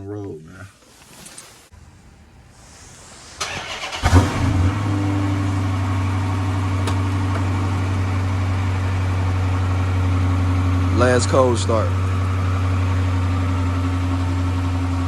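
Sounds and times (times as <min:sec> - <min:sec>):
car engine starting and idling: 0:01.8 - 0:15.0
starter cranking: 0:03.4 - 0:04.8.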